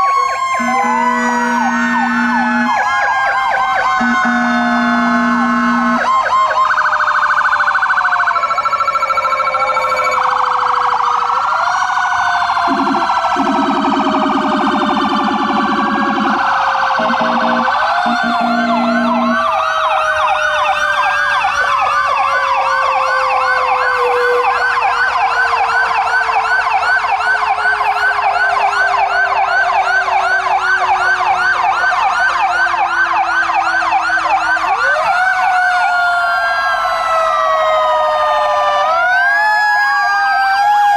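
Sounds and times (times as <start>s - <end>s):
fire truck sirens wailing: 0.0s - 40.9s
siren yelp: 0.0s - 40.9s
air horn blasts: 0.6s - 2.9s, 4.0s - 6.1s, 17.0s - 19.6s, 23.8s - 25.0s, 27.7s - 28.8s.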